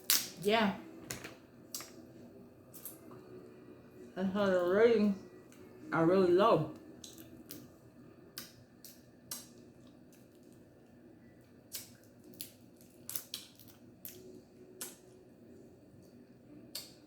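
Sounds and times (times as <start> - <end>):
crab shells cracking: 11.7 - 14.2.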